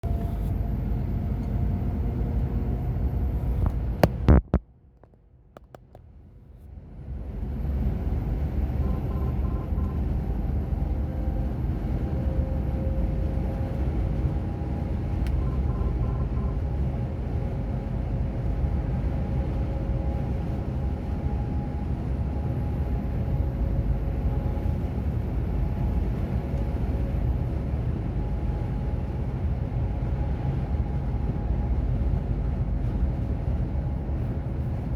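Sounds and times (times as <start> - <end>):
road noise: 0.0 - 21.2
truck engine drone: 0.0 - 34.9
sharp clicks: 3.6 - 6.0.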